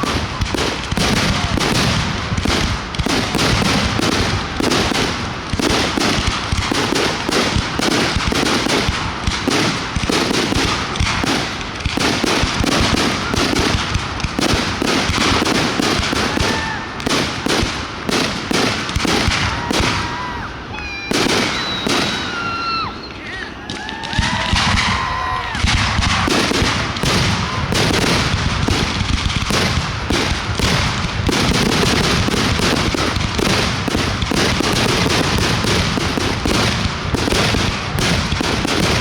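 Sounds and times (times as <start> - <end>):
fireworks bursting and crackling: 0.0 - 39.0
faint whistling tones: 21.4 - 23.8.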